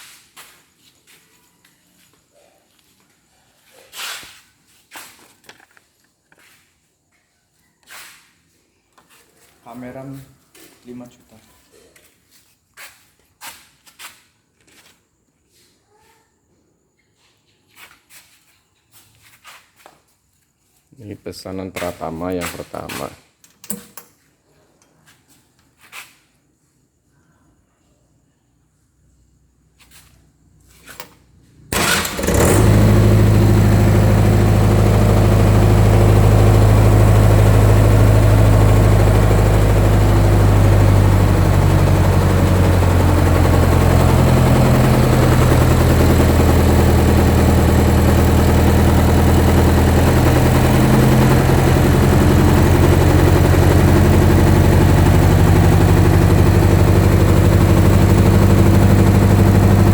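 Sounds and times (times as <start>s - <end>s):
diesel engine starting and running: 31.6s - 59.9s.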